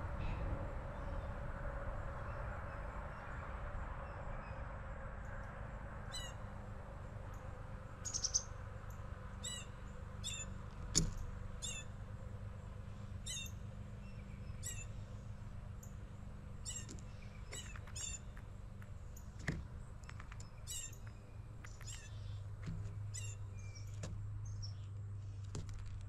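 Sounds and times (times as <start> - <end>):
low background rumble: 0.0 - 5.4
songbirds chirping: 0.0 - 26.0.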